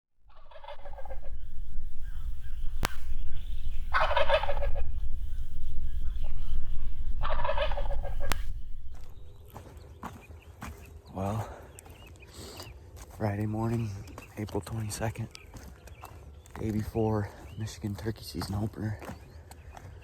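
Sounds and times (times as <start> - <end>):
steady low rumble: 0.1 - 9.6
turkey gobbling: 0.2 - 10.2
sharp clicks: 0.8 - 9.5.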